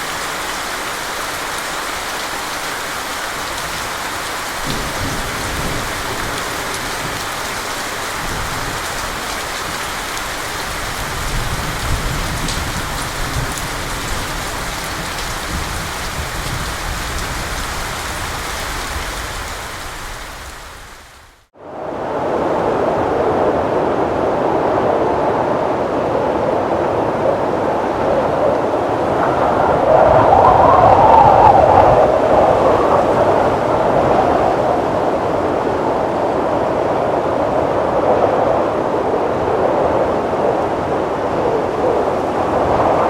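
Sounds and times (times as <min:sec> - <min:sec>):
wind buffeting microphone: 0:03.4 - 0:20.4, 0:21.8 - 0:43.0
wind rushing: 0:21.6 - 0:43.0.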